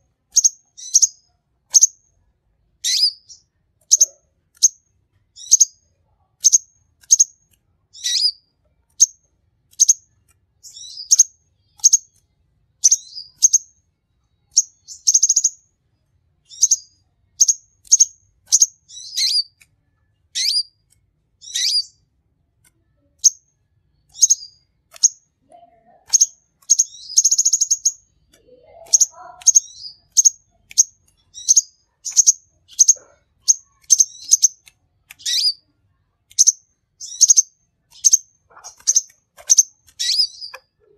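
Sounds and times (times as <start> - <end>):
bird chirping: 0.0 - 2.1, 2.8 - 22.1, 22.8 - 40.9
bird buzzy trills: 36.4 - 40.6.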